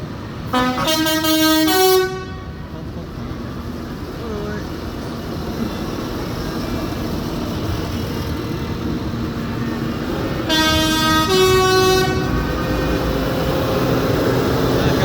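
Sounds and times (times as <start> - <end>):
tractor engines rumbling: 0.0 - 15.0
two-note vehicle horn: 10.5 - 12.4.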